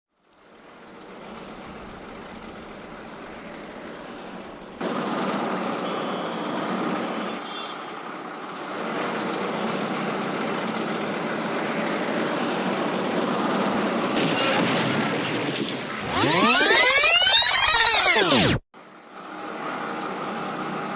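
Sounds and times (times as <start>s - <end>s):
truck engine and road noise: 0.3s - 16.0s.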